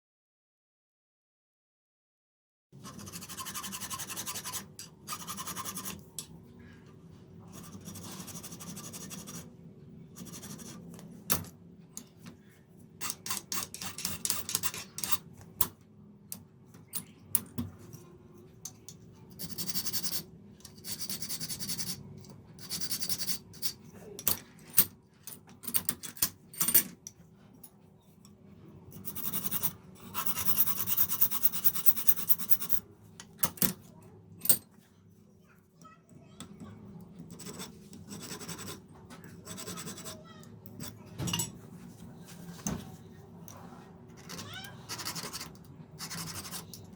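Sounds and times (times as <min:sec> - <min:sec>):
tools filing a knife: 0:02.8 - 0:06.0, 0:07.5 - 0:09.5, 0:10.2 - 0:10.8, 0:13.0 - 0:15.3, 0:19.3 - 0:22.0, 0:22.6 - 0:23.8, 0:29.0 - 0:32.8, 0:37.3 - 0:41.0, 0:44.2 - 0:46.9.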